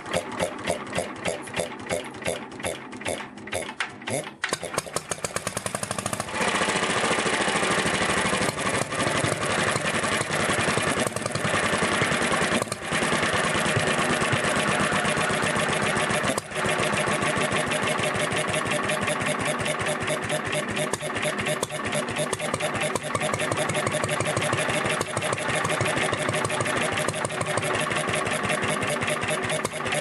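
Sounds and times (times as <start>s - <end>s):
stationary oil engine running: 0.0s - 30.0s.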